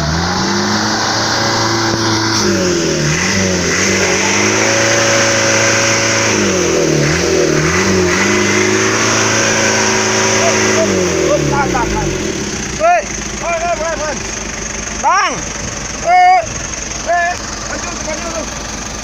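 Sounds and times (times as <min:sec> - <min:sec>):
motorcycle engine revving hard: 0:00.0 - 0:14.4.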